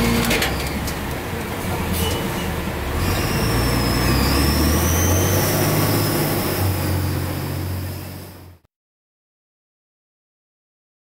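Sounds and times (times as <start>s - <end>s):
garbage truck engine droning: 0.0s - 8.6s.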